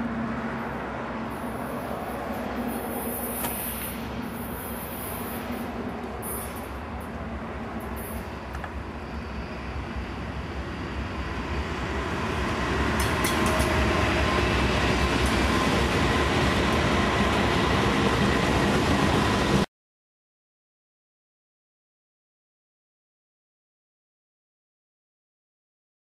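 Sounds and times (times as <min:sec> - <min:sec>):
diesel locomotives passing: 0:00.0 - 0:19.7
train rail noise: 0:00.0 - 0:19.7.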